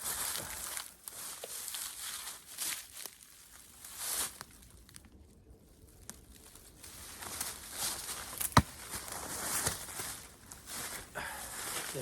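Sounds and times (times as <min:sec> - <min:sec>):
footsteps rustling on forest floor: 0:00.0 - 0:04.9, 0:06.0 - 0:12.0.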